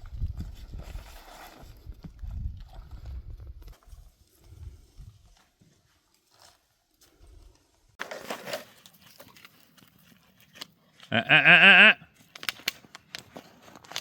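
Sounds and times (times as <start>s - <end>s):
goat bleating: 11.1s - 12.1s.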